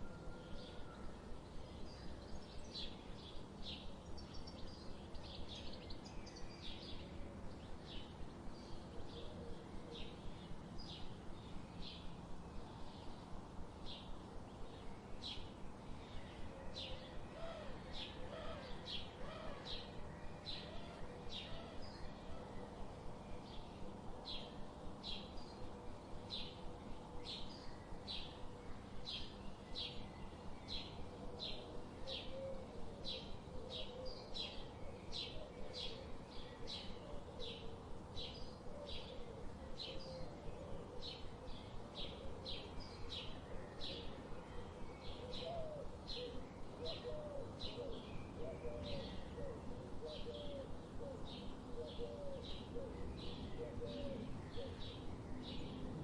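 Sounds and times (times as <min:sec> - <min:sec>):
faint low warbling bird call: 0:14.8 - 0:56.0.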